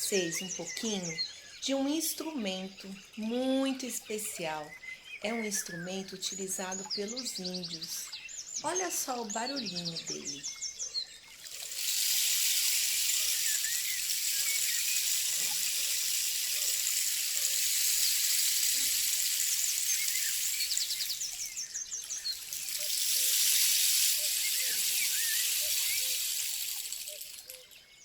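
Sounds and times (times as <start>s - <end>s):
rain stick trickling hiss: 0.0s - 5.7s, 6.3s - 28.0s.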